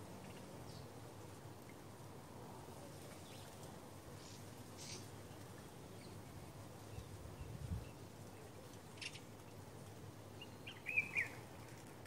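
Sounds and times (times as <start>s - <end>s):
steady low hiss: 0.0s - 12.0s
small birds chirping: 3.0s - 9.7s, 10.3s - 11.8s.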